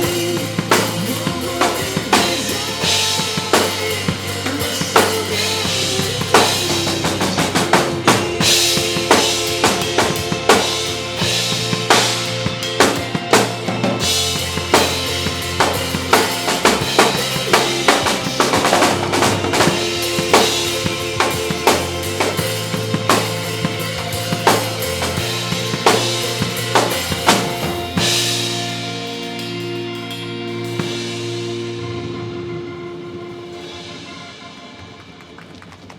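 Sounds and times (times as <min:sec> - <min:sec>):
drum kit pop ballad groove: 0:00.0 - 0:32.6
backing track held chords: 0:00.0 - 0:35.1.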